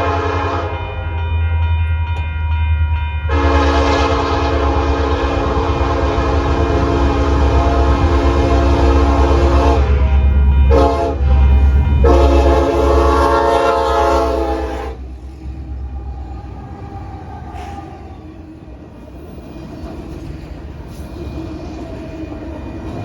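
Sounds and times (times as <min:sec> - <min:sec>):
locomotive air horn blasts: 0:00.0 - 0:00.9, 0:03.3 - 0:15.2
diesel locomotive rumble: 0:00.0 - 0:23.0.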